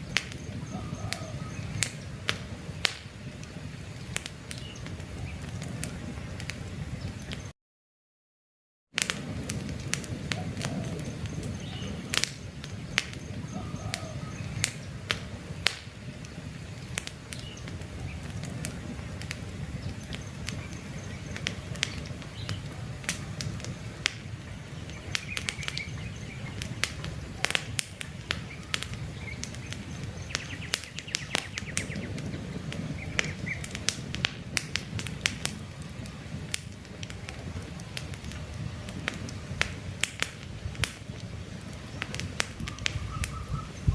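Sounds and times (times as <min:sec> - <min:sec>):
birds chirping faintly: 0:00.0 - 0:07.5, 0:10.4 - 0:34.0, 0:41.1 - 0:43.9
campfire crackling: 0:00.0 - 0:07.5, 0:09.0 - 0:43.9.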